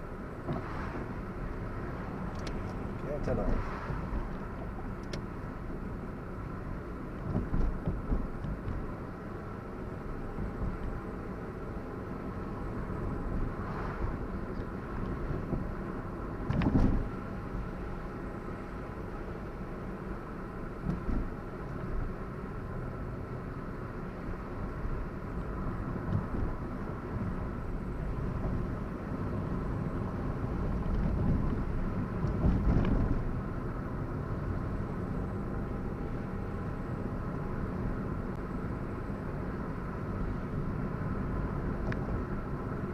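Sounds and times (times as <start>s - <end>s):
car engine and road noise: 0.0s - 42.9s
car bumps: 7.2s - 8.9s, 16.4s - 17.2s.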